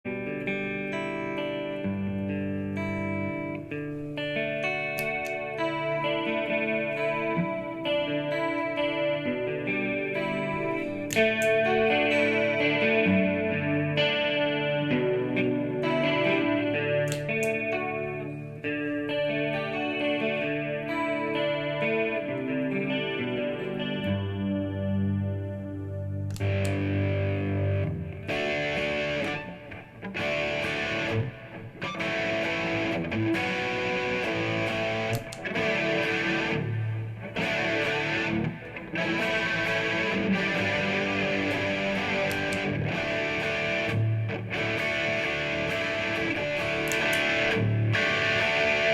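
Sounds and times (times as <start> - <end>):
electric guitar: 0.0 - 48.9.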